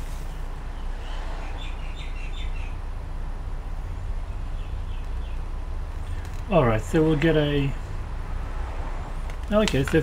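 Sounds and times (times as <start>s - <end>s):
birds chirping: 0.2s - 7.8s.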